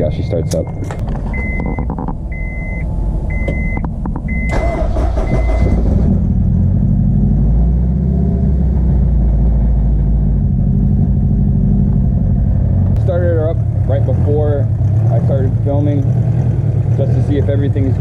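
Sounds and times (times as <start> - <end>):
car engine starting and idling: 0.0 - 18.0
repeating beep: 0.3 - 5.8.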